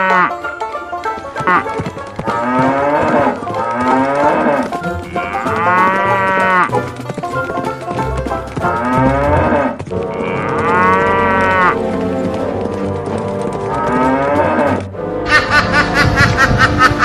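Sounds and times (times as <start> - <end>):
background music: 0.0 - 17.0
cow mooing: 2.3 - 6.7, 8.7 - 11.8.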